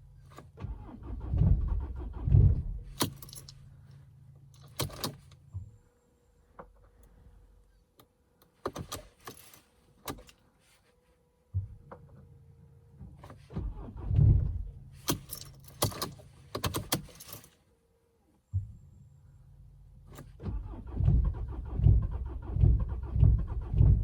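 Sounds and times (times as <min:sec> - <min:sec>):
diesel engine cranking: 0:00.3 - 0:03.8, 0:04.6 - 0:05.5, 0:13.3 - 0:17.6, 0:20.1 - 0:24.0
car keys jangling: 0:02.9 - 0:03.7, 0:04.6 - 0:05.4, 0:08.7 - 0:10.4, 0:15.0 - 0:17.6.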